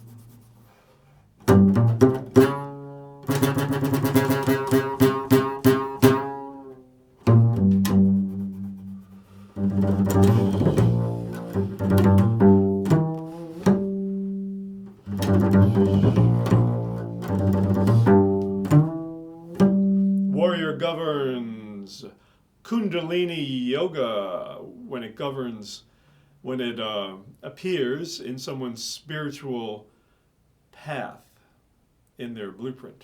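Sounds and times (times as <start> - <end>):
solo low instrumental music: 1.4 - 21.6.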